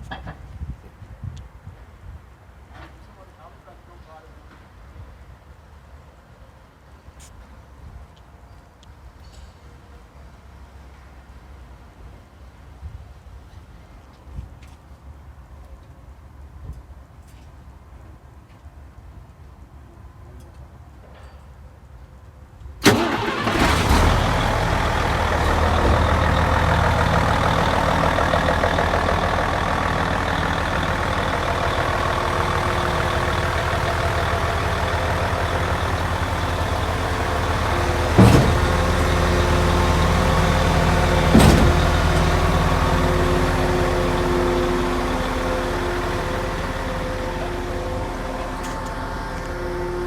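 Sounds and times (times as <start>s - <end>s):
diesel truck engine starting and idling: 22.8s - 50.0s.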